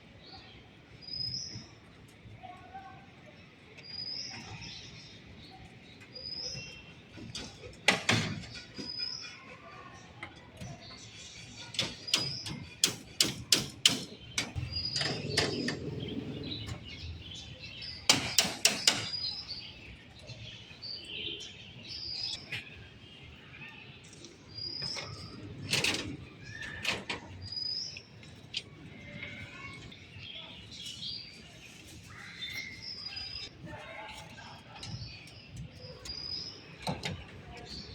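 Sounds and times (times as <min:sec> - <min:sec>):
sharp knocks and clanks: 0:07.2 - 0:09.2, 0:11.6 - 0:17.2, 0:17.9 - 0:19.4.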